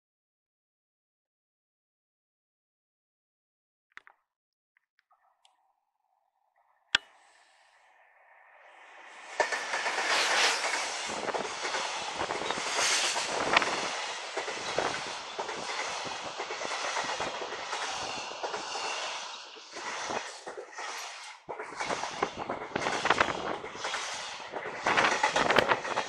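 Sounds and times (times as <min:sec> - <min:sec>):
train wheels clattering: 0:09.2 - 0:26.0.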